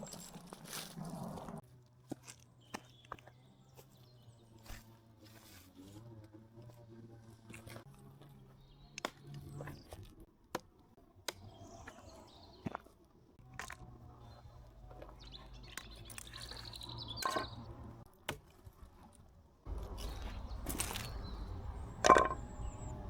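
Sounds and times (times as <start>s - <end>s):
bird chirp: 8.5s - 10.1s, 11.4s - 12.8s, 14.1s - 18.0s, 19.7s - 23.0s.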